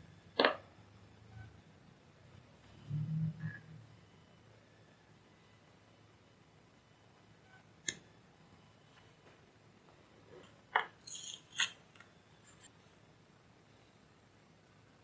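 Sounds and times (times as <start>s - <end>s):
small tools clicking and clinking: 10.8s - 12.7s.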